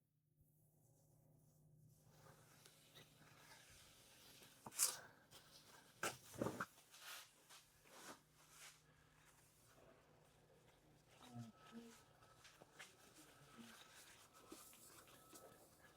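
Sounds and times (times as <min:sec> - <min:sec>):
cloth rubbing a surface: 0:06.3 - 0:15.9.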